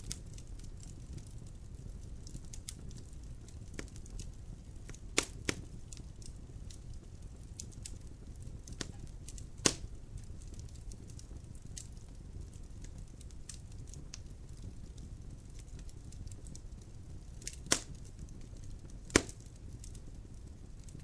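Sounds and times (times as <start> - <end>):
wood fire crackling: 0.0 - 21.0
sharp loud fire pops: 9.6 - 9.9, 17.7 - 17.9, 19.2 - 19.4.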